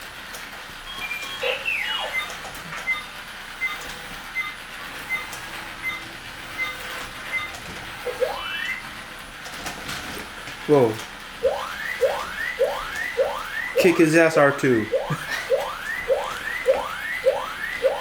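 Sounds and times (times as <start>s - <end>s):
electronic robot whistles: 1.0s - 3.1s, 8.1s - 8.9s, 11.4s - 14.2s, 14.8s - 18.0s.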